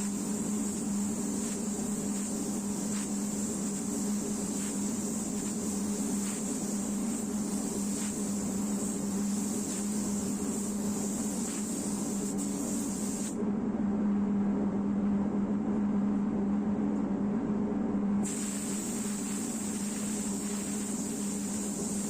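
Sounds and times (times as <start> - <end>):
spray gun hissing: 0.0 - 13.4, 18.2 - 22.0
low mechanical hum: 0.0 - 22.0.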